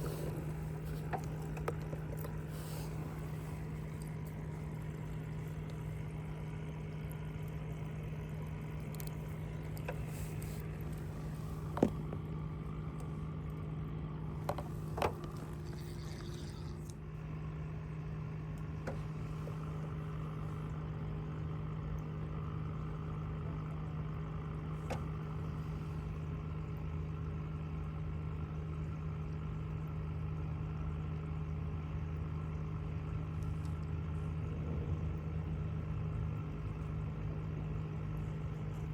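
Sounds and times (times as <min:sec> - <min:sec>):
boat motor running: 0:00.0 - 0:21.9.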